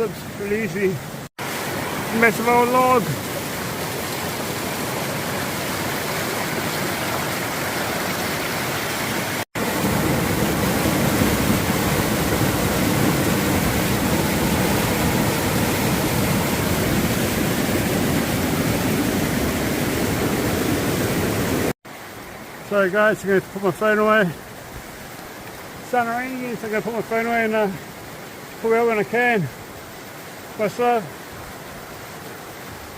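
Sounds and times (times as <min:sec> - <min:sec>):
river rapids rushing: 0:00.0 - 0:22.3.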